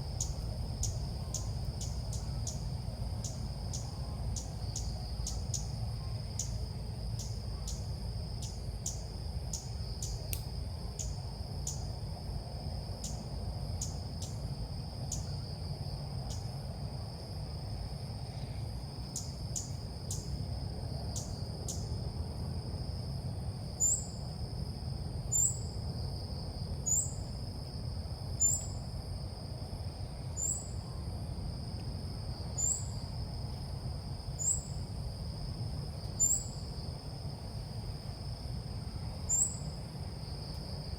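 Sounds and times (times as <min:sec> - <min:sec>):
high insect drone: 0:00.0 - 0:40.9
sharp high bird ticks: 0:09.6 - 0:11.1.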